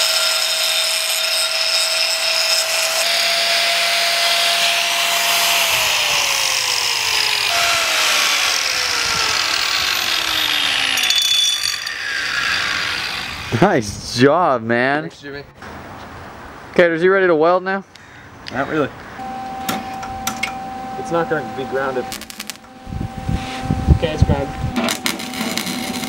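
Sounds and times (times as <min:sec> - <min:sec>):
power tool cutting metal: 0:00.0 - 0:13.6, 0:24.0 - 0:26.0.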